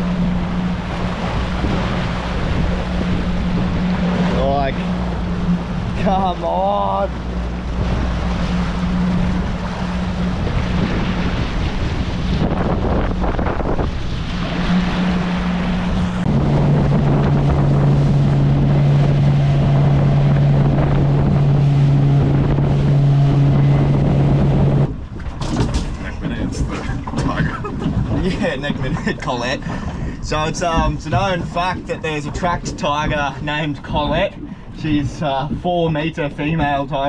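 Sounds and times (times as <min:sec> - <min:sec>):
small boat motor running: 0:00.0 - 0:37.0
water slapping against hull: 0:00.0 - 0:37.0
wind buffeting microphone: 0:00.0 - 0:37.0.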